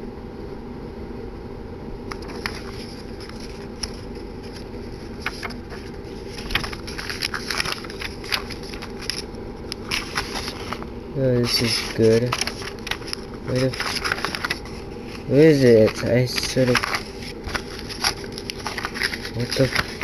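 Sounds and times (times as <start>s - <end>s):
background hiss and hum: 0.0s - 20.0s
packaging crackling and scraping: 2.1s - 20.0s.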